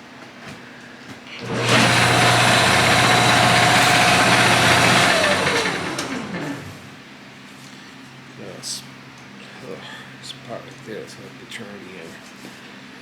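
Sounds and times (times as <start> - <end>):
wood lathe motor whining: 1.4 - 7.0.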